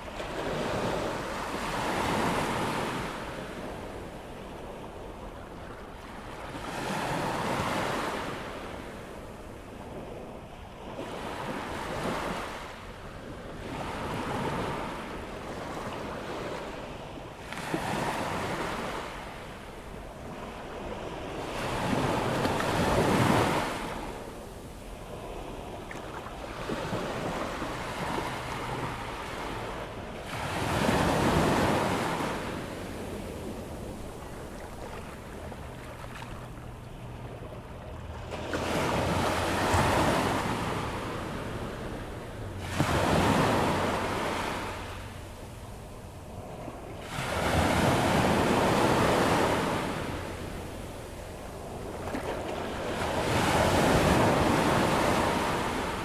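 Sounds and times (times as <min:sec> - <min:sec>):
waves breaking on a beach: 0:00.0 - 0:56.0.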